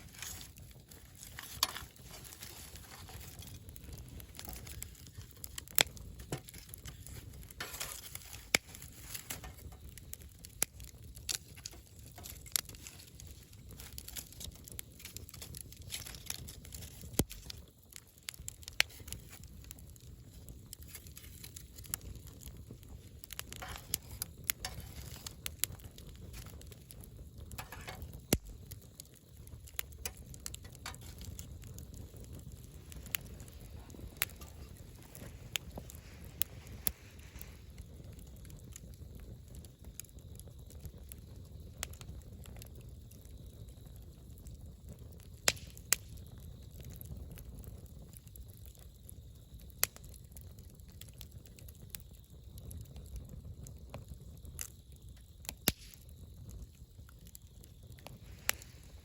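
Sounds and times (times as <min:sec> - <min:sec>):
campfire crackling and popping: 0:00.0 - 0:59.0
low rumble of flames: 0:00.0 - 0:59.0.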